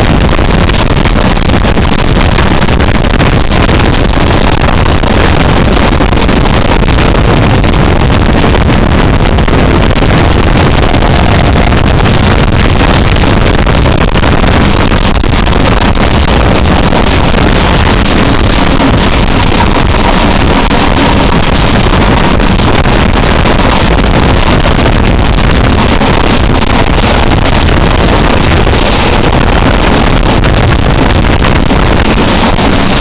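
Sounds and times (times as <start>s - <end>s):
wind buffeting microphone: 5.0s - 24.6s
diesel engine working: 6.9s - 22.6s.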